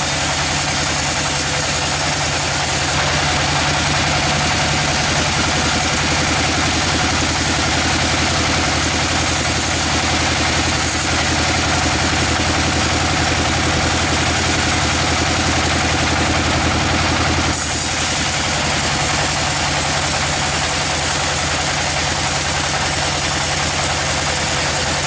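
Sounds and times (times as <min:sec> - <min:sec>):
sawmill machinery droning: 0:00.0 - 0:25.0
loud hiss: 0:17.5 - 0:25.0.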